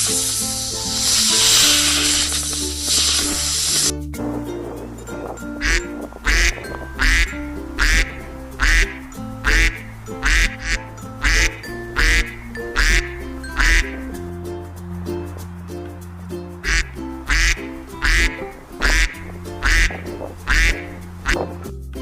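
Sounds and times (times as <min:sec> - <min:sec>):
background music: 0:00.0 - 0:22.0
duck quacking: 0:05.6 - 0:14.1, 0:16.6 - 0:21.5.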